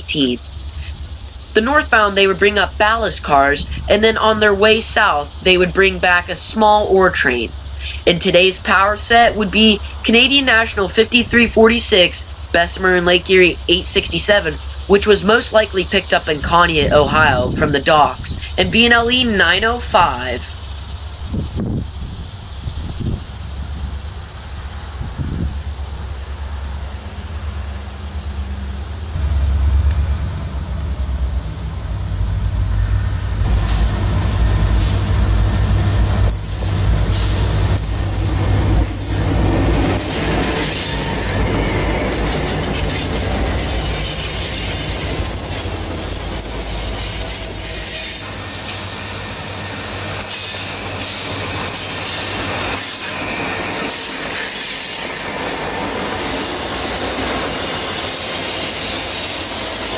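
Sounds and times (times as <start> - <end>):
diesel locomotive engines rumbling: 0.0 - 59.9
steel wheels squealing and clanking: 36.4 - 59.9.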